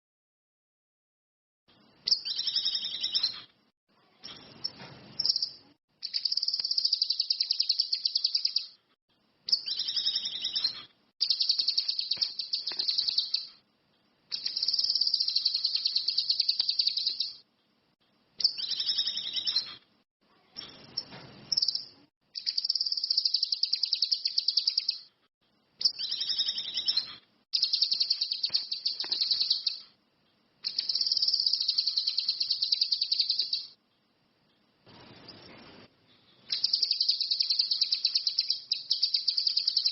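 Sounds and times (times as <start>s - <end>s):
songbird buzzy trills: 20.6s - 25.1s.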